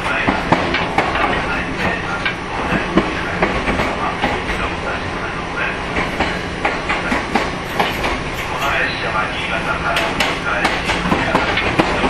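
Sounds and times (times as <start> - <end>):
train rumble and hiss: 0.0 - 12.0
wheels and couplings knocking: 0.1 - 4.7, 6.0 - 8.7, 9.9 - 12.0.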